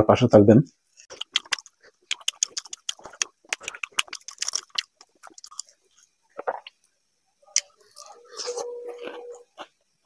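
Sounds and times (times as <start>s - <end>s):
close-up chewing clicks: 1.1s - 5.8s.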